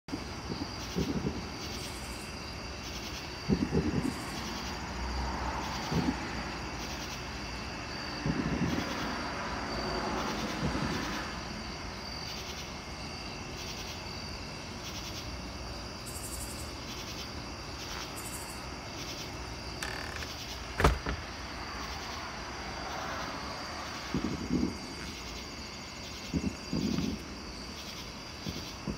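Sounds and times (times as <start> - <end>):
crickets chirping: 0.1 - 28.9.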